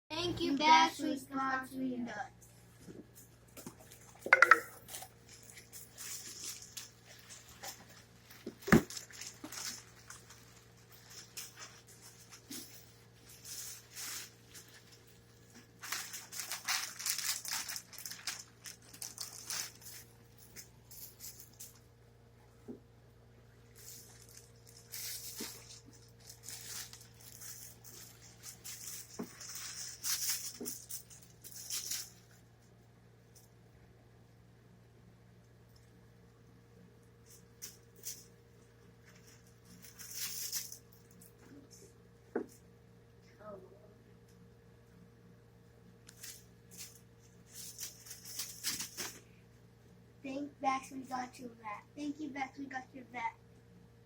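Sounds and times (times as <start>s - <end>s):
rustling and crinkling: 2.5s - 21.9s, 23.6s - 32.8s, 37.1s - 42.7s, 46.0s - 49.5s.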